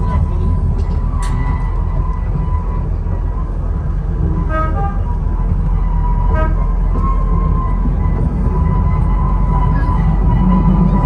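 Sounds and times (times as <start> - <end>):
miniature train rumbling: 0.0 - 11.0
train horn toot: 4.4 - 11.0.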